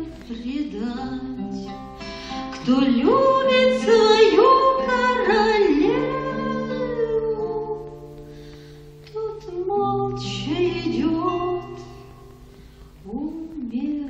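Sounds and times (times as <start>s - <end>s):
acoustic guitar: 0.0s - 14.0s
person singing: 2.4s - 8.1s, 9.1s - 12.3s.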